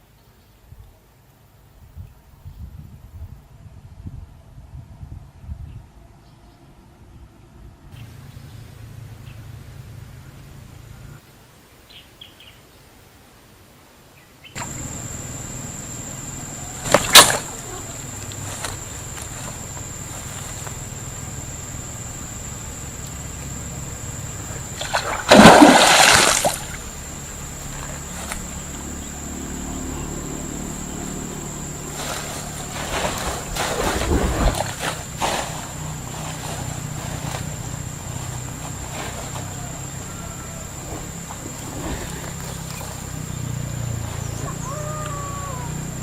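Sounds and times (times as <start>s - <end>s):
steady hiss: 8.0s - 44.4s
water splashing: 16.6s - 28.8s.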